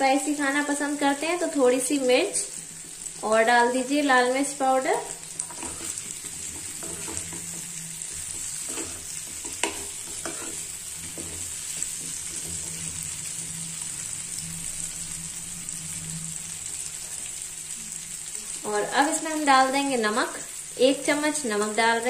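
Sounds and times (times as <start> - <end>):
food frying in oil: 0.0 - 22.0
spatula scraping pan: 5.2 - 13.6.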